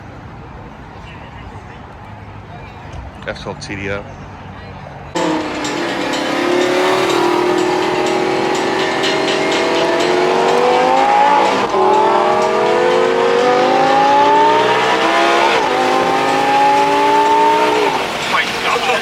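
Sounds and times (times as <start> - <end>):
sports car engine accelerating: 5.1 - 19.0.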